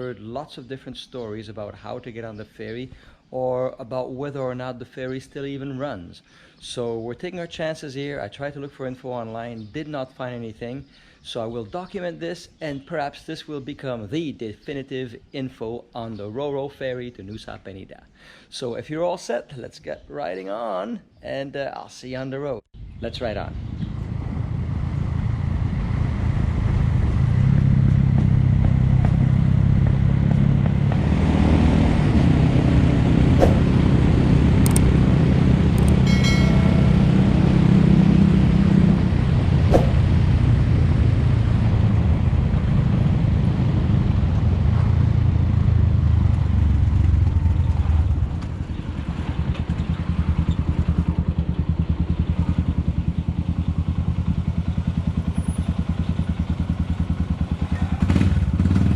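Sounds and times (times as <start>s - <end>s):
sharp clicks: 34.6s - 34.9s, 35.8s - 36.0s
motorcycle engine running: 44.1s - 58.9s.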